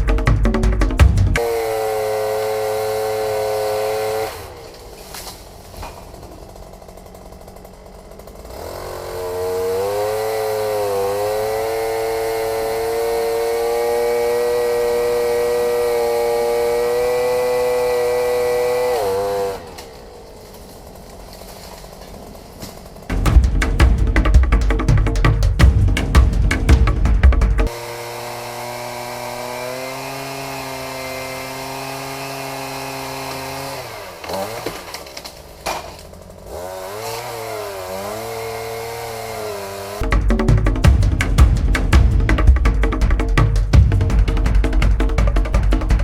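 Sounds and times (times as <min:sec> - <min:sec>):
music: 0:00.0 - 0:01.4, 0:23.1 - 0:27.7, 0:40.0 - 0:46.0
chainsaw engine revving: 0:00.0 - 0:46.0.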